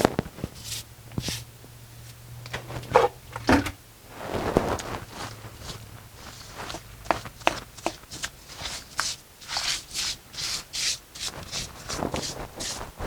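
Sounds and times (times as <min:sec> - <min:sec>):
tool rubbing mortar: 0:05.6 - 0:13.0.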